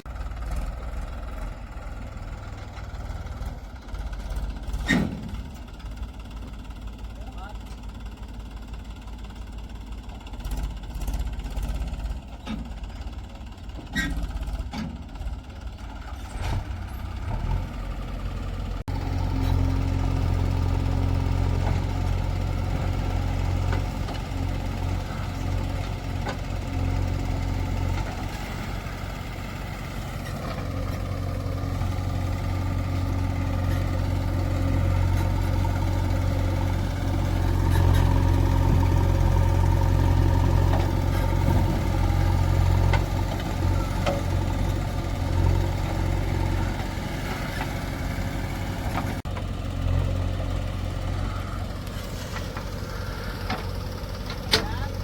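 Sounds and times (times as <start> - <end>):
diesel engine drone: 0.0 - 55.0
clunks and knocks: 12.2 - 17.1, 40.4 - 49.5, 51.8 - 55.0.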